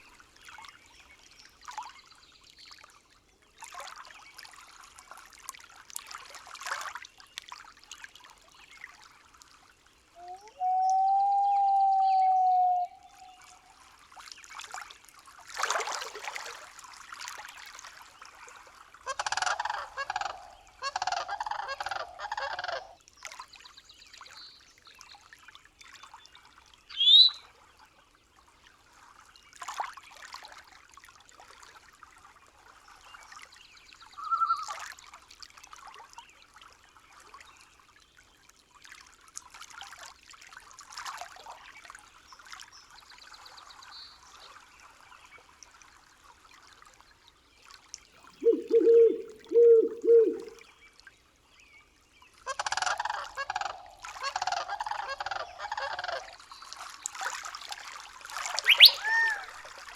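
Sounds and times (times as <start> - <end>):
trickle of water: 0.0 - 59.9
faint animal calls: 19.1 - 23.0, 48.4 - 50.6, 58.6 - 59.6
short rising whistle: 58.7 - 59.4
honking animal calls: 58.7 - 59.5.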